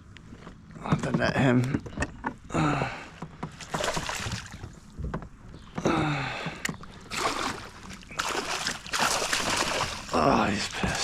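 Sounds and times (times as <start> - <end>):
gear knocking against kayak: 0.8 - 7.0
water splashing: 3.6 - 4.7, 7.0 - 11.0.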